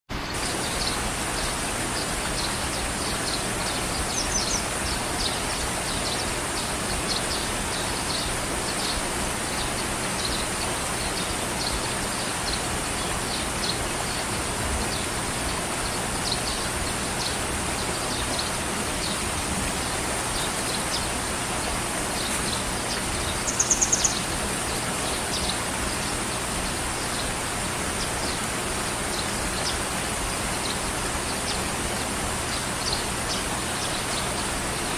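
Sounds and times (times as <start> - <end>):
high bird chirps: 22.2 - 24.3.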